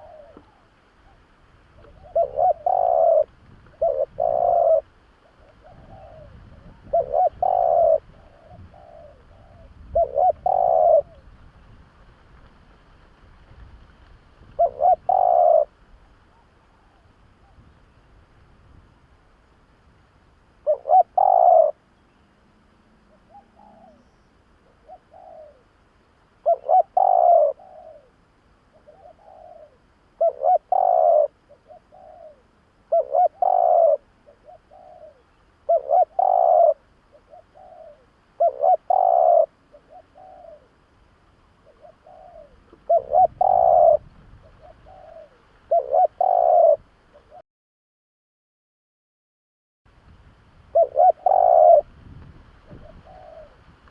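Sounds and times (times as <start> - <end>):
dove cooing: 0.0 - 1.2, 1.8 - 11.3, 14.5 - 17.6, 20.6 - 21.8, 23.0 - 25.7, 26.4 - 40.9, 41.5 - 47.4, 50.7 - 51.9, 52.7 - 53.7.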